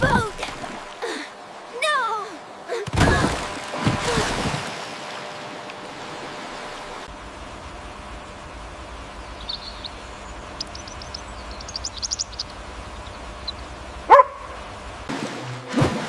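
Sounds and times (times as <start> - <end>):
rushing water: 0.0 - 2.0, 2.7 - 16.0
faint high chirps: 9.4 - 13.7.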